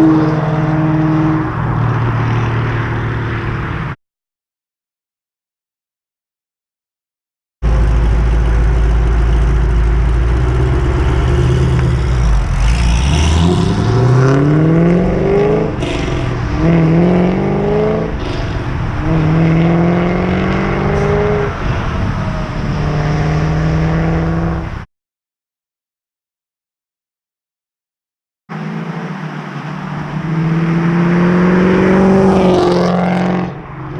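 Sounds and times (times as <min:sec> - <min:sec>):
car engine accelerating through gears: 0:07.7 - 0:24.8, 0:28.5 - 0:33.6.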